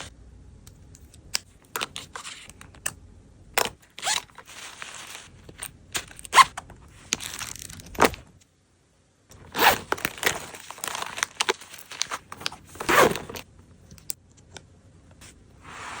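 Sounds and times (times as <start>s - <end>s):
items clicking and tapping: 9.3s - 14.7s.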